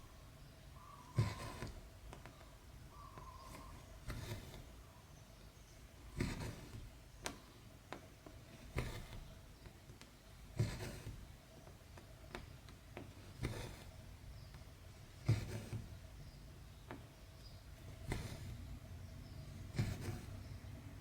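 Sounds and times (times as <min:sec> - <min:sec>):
thread swishing through fabric: 0:19.7 - 0:20.4.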